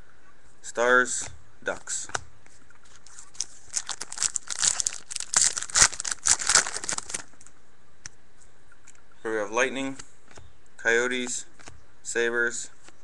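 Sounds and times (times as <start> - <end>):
wrapper tearing and crinkling: 2.9 - 7.4.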